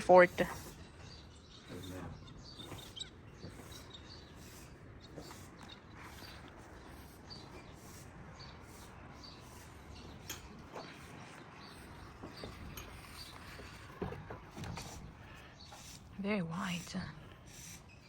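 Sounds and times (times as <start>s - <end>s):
bird chirps: 0.0s - 14.0s.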